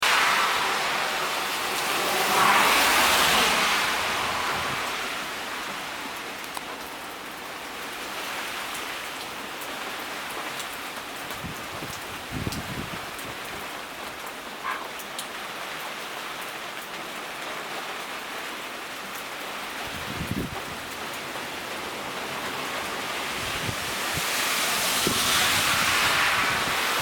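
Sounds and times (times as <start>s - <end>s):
wind gusting: 0.0s - 6.2s, 11.4s - 13.4s, 19.9s - 20.9s, 21.7s - 27.0s
heavy rain pouring: 0.0s - 27.0s
wind buffeting microphone: 0.6s - 5.1s, 11.3s - 13.6s, 19.9s - 21.0s, 23.0s - 27.0s.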